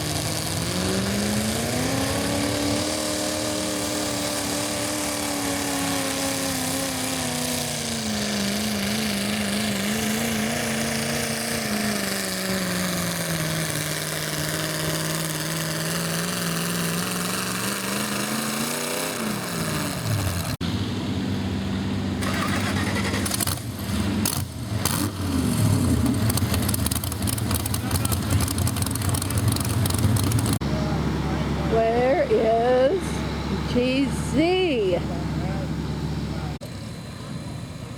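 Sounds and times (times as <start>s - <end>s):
engine clatter: 0.0s - 37.9s
tractor engine straining under load: 22.1s - 36.6s.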